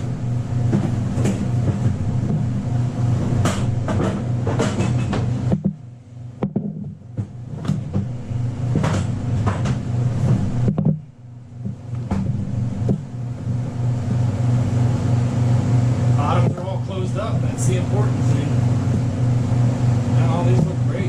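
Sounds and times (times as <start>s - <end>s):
low mechanical hum: 0.0s - 21.0s
knocks and clatter: 0.6s - 2.5s, 3.3s - 5.8s, 6.4s - 13.1s.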